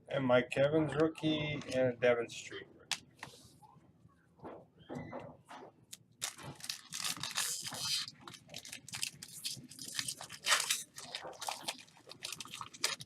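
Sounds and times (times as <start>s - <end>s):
foil wrapper crinkling and tearing: 6.2s - 13.0s.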